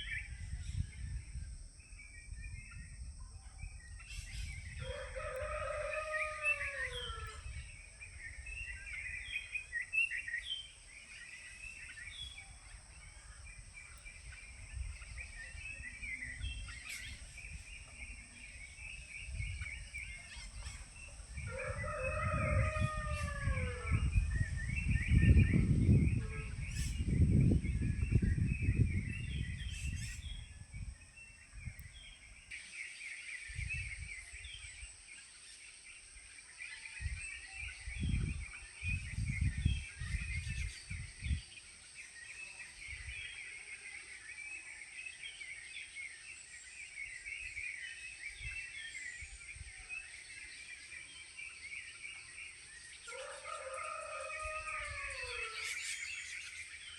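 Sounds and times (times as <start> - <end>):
small birds chirping: 0.0 - 56.9
rooster crowing: 4.8 - 7.4, 21.4 - 24.2, 53.1 - 55.8.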